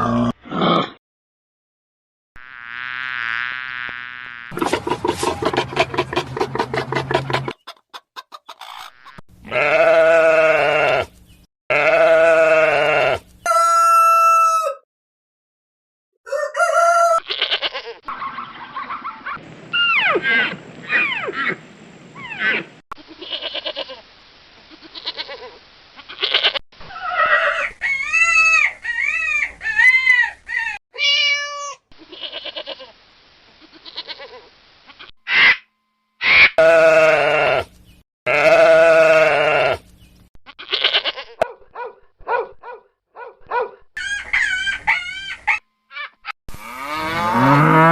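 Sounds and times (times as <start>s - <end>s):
chicken calls: 4.6s - 9.7s, 13.2s - 14.8s, 16.2s - 21.6s, 26.2s - 30.8s, 44.0s - 46.4s
goats bleating: 9.4s - 11.1s, 11.7s - 13.2s, 36.6s - 37.7s, 38.3s - 39.8s, 40.6s - 41.4s.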